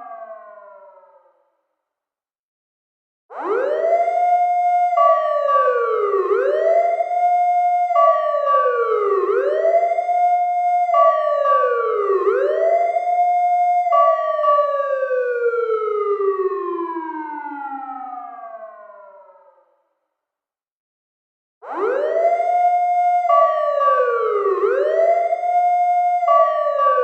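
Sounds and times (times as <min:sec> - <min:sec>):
fire truck siren wailing: 0:03.3 - 0:19.5, 0:21.6 - 0:27.0.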